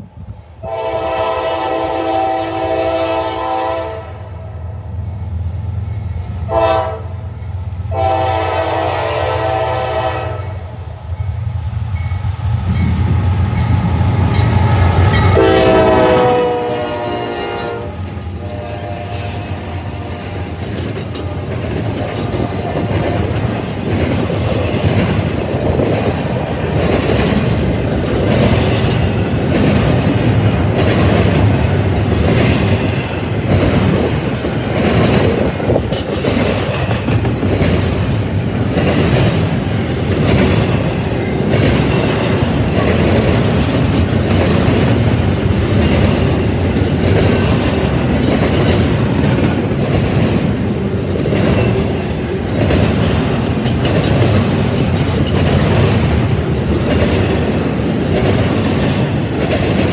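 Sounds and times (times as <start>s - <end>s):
train cars rushing past: 0.0s - 59.9s
locomotive air horn blasts: 0.6s - 4.3s, 6.5s - 7.2s, 7.9s - 10.6s, 15.2s - 20.4s
wheels clacking over rail joints: 19.2s - 59.9s.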